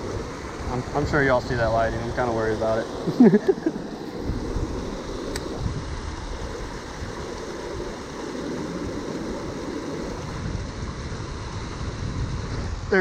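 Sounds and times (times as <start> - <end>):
running water rushing: 0.0 - 13.0
wind buffeting microphone: 0.0 - 13.0.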